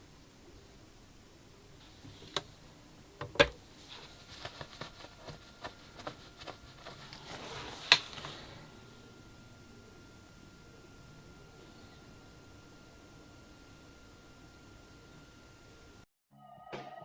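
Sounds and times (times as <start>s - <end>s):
packaging rustle: 3.4s - 8.6s.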